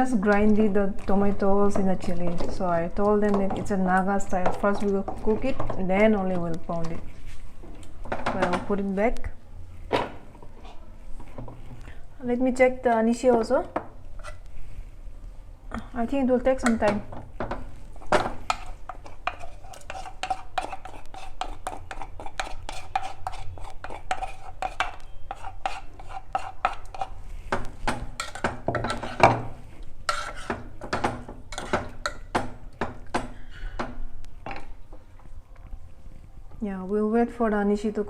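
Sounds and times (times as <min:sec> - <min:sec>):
spoon clinking in metal pot: 0:28.2 - 0:29.2.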